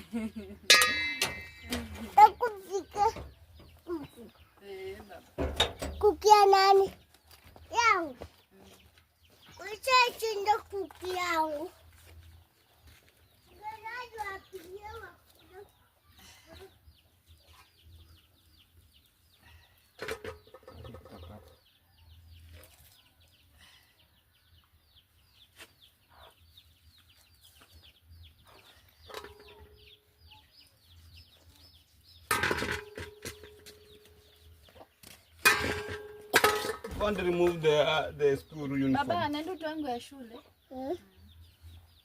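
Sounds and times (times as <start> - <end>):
chicks cheeping: 15.4 - 35.4, 37.9 - 42.0.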